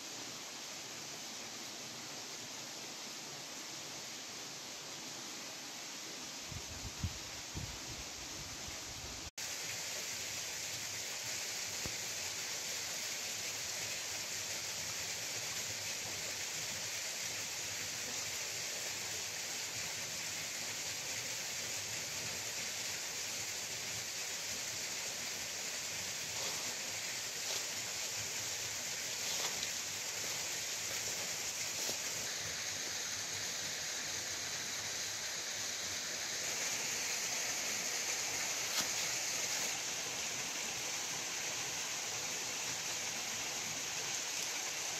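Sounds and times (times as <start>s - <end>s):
waterfall pouring over rocks: 9.2s - 44.9s.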